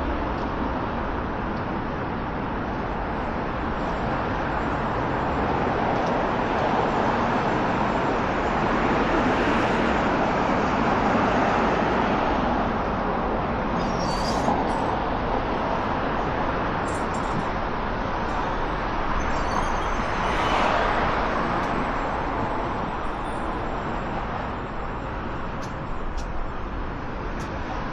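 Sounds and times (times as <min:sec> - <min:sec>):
high-pitched squeak: 0:13.8 - 0:14.9.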